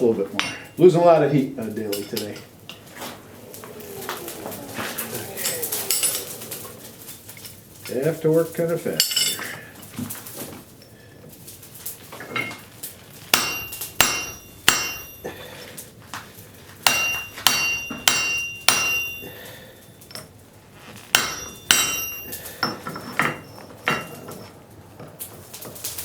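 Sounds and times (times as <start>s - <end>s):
hammer ringing on anvil: 0.4s - 0.8s, 13.4s - 15.4s, 16.8s - 19.3s, 21.1s - 24.5s.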